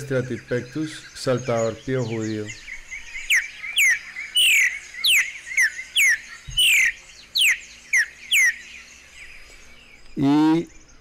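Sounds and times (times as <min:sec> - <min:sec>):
faint chatter of other birds: 0:00.0 - 0:11.0
bird whistling falling notes: 0:03.3 - 0:08.6.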